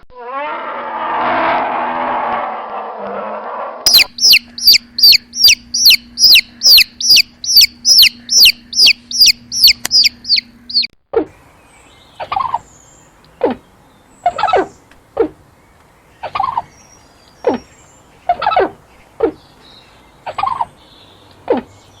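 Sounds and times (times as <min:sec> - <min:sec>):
bird peeping rapidly: 0:03.9 - 0:11.0, 0:11.6 - 0:22.0
lower falling bird calls: 0:03.9 - 0:22.0.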